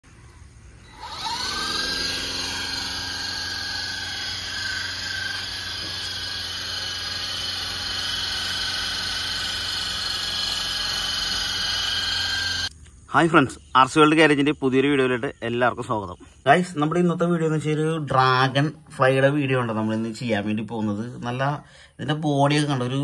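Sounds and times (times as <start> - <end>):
toy helicopter motors whining: 0.0 - 12.7.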